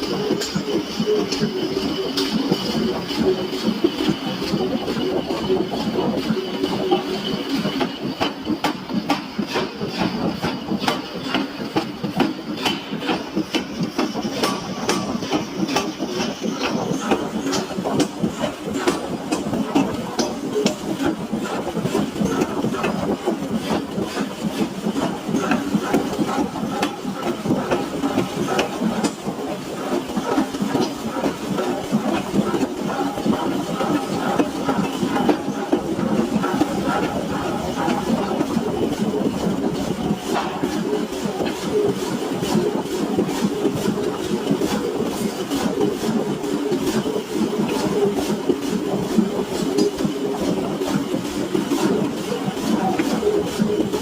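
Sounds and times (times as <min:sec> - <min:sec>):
heavy machinery running: 0:00.0 - 0:54.0
metal clanks and clicks: 0:00.1 - 0:03.3.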